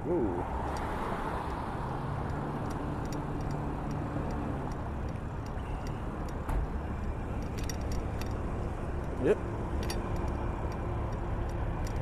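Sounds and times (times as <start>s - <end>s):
road traffic hum: 0.0s - 12.0s.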